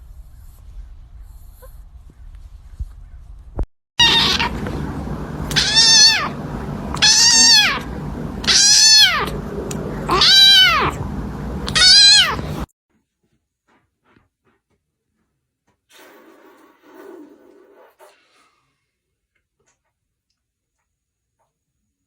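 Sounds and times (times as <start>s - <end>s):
cat meowing loudly: 4.0s - 4.7s, 5.5s - 9.4s, 10.1s - 11.0s, 11.6s - 12.6s
steady low hum: 4.0s - 12.7s.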